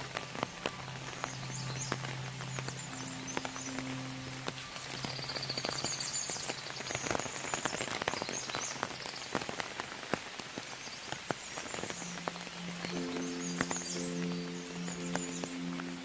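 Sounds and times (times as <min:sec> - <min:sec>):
soft background music: 0:00.0 - 0:08.2, 0:11.4 - 0:16.0
rain drops tapping: 0:00.0 - 0:16.0
rain patter: 0:00.0 - 0:16.0.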